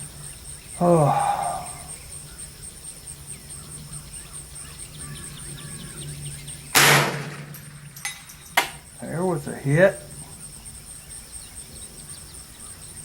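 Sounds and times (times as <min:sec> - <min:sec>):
bird chirps: 0:00.0 - 0:13.0
high insect drone: 0:00.0 - 0:13.0
rifle shot: 0:06.7 - 0:08.0.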